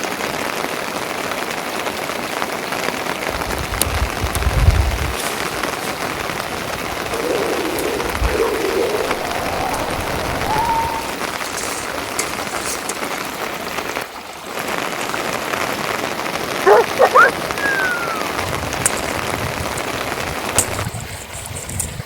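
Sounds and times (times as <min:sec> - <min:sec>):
steady rain falling: 0:00.0 - 0:21.7
faint wavering call: 0:07.1 - 0:11.3, 0:16.7 - 0:18.4.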